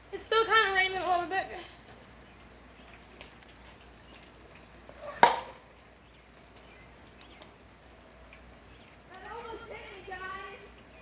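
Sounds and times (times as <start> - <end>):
light rain dripping: 0.0 - 11.0
plastic bat hitting ball: 5.2 - 5.7.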